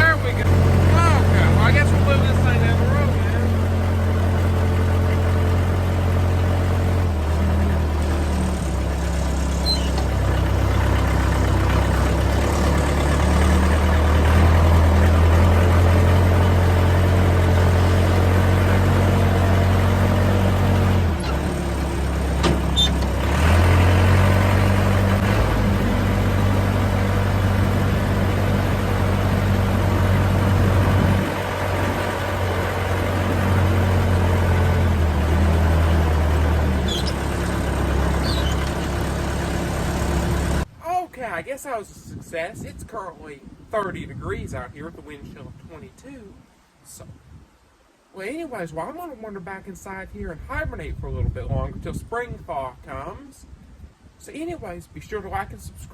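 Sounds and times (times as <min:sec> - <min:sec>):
diesel engine running: 0:00.0 - 0:40.7.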